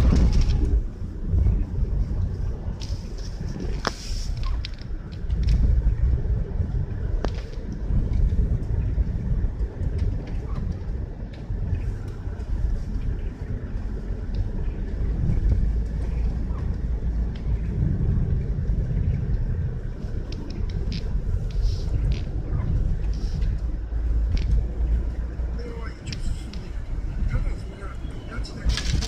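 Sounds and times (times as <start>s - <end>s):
road and wind noise: 0.0s - 29.0s.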